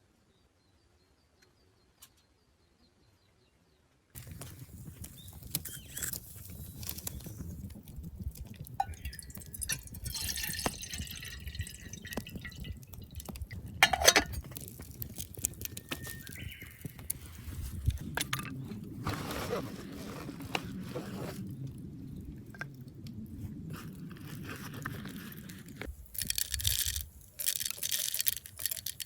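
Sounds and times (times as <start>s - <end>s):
liquid dripping and pouring: 4.2s - 18.7s, 25.0s - 29.0s
small clinks and knocks: 4.2s - 18.8s, 25.8s - 29.0s.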